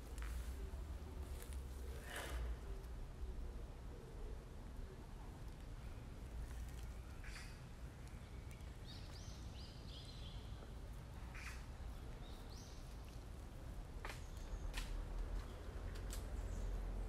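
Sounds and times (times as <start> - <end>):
leaves rustling: 0.0 - 2.5.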